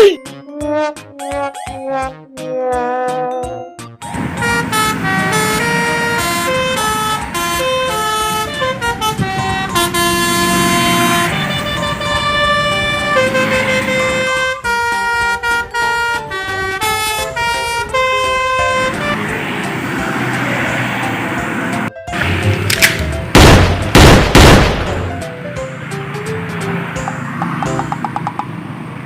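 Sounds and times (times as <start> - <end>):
vehicle horns sounding: 4.2 - 19.2.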